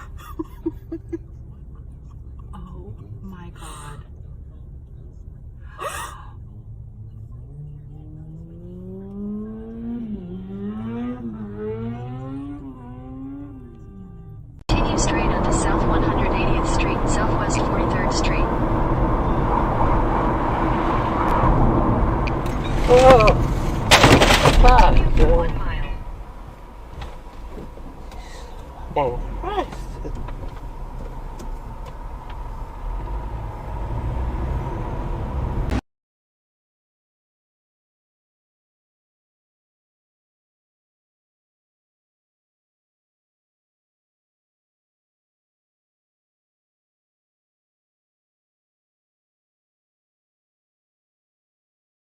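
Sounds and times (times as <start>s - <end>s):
car engine accelerating: 0.0s - 35.8s.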